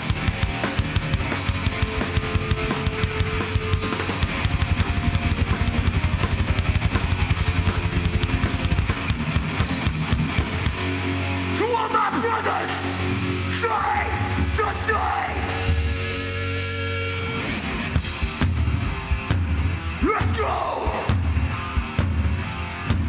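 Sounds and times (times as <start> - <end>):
fast kick-drum strokes: 0.0 - 11.0, 17.5 - 23.0
heavy metal band playing: 0.0 - 23.0.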